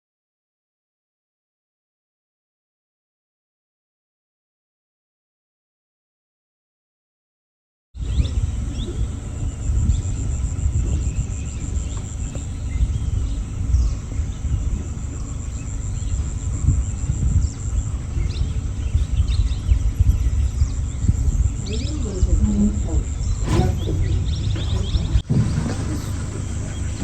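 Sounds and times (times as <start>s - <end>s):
bird chirps: 8.0s - 27.0s
insect trill: 8.0s - 27.0s
low rumble: 8.0s - 27.0s.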